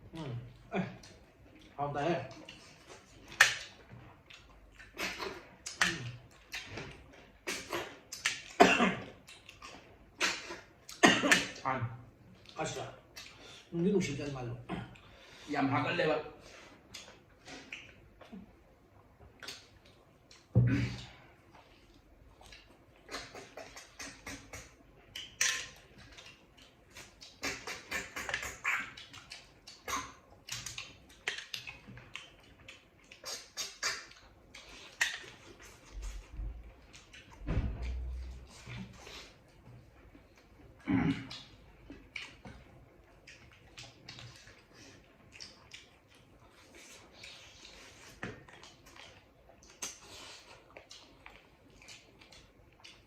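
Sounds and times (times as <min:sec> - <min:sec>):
chewing and slurping: 0:00.2 - 0:11.0, 0:21.4 - 0:53.0
low thump: 0:37.4 - 0:38.4.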